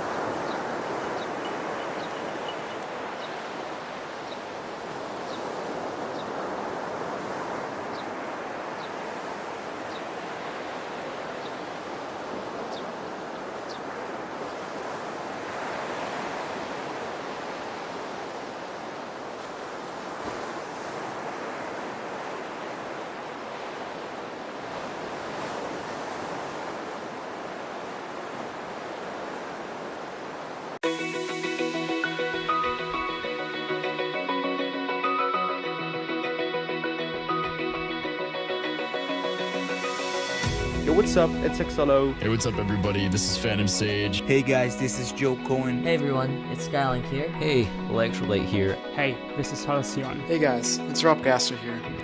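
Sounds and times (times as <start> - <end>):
sea waves washing onto beach: 0.0 - 33.3.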